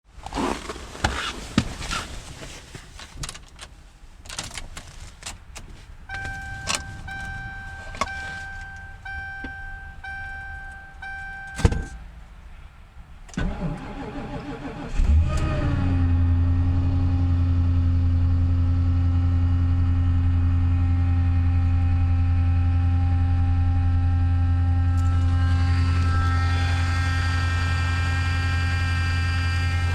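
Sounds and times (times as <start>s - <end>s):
car engine cranking and idling: 0.1s - 29.9s
power steering pump whine: 5.6s - 16.1s, 21.1s - 29.9s
warning chime: 6.1s - 12.0s, 25.0s - 29.9s
sharp clunk: 6.1s - 12.1s.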